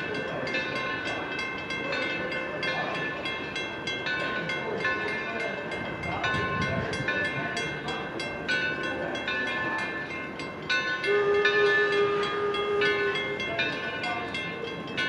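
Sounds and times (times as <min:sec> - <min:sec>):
locomotive bell ringing: 0:00.0 - 0:15.0
steam whistle: 0:11.0 - 0:13.8.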